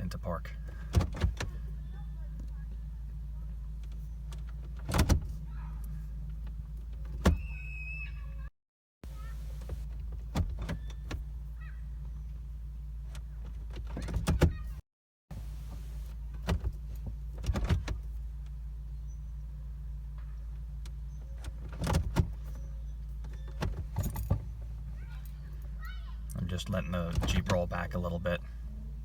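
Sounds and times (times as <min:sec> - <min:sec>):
steady low vehicle hum: 0:00.0 - 0:29.0.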